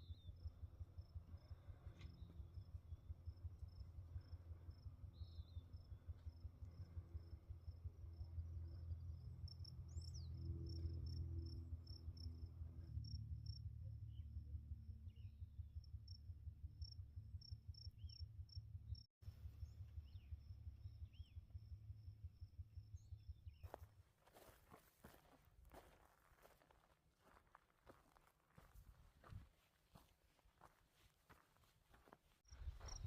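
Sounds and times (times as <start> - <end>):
bird chirps: 32.5 - 33.0
insects chirping: 32.5 - 33.0.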